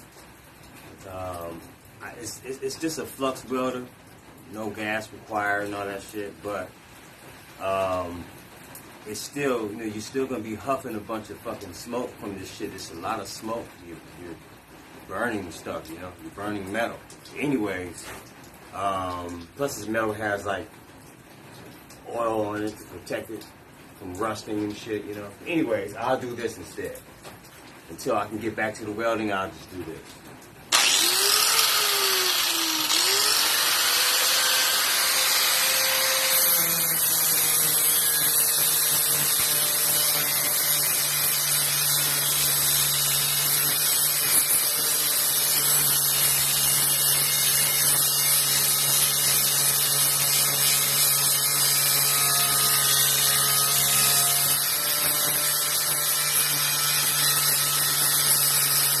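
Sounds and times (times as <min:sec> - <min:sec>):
electric grinder grinding metal: 0:30.7 - 0:59.0.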